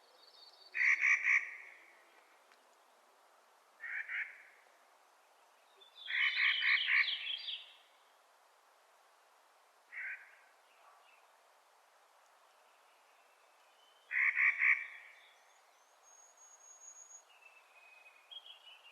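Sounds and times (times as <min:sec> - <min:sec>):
harsh grating bird calls: 0:06.1 - 0:07.4.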